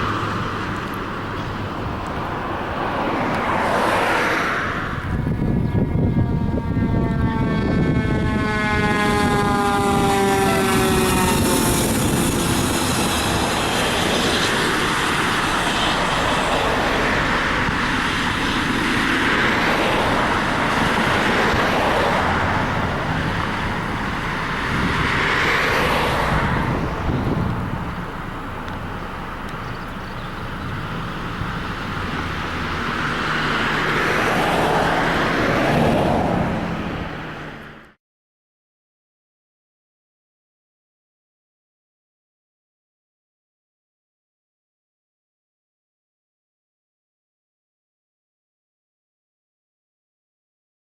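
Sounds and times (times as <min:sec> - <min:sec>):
vehicles passing: 0:00.0 - 0:38.0
siren: 0:05.0 - 0:26.7.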